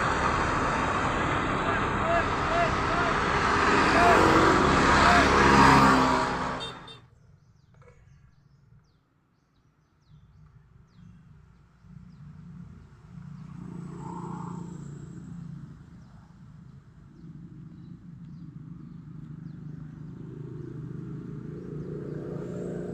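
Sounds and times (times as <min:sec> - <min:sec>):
loud vehicle noise: 0:00.0 - 0:07.0, 0:18.8 - 0:22.9
low engine rumble: 0:00.0 - 0:07.0.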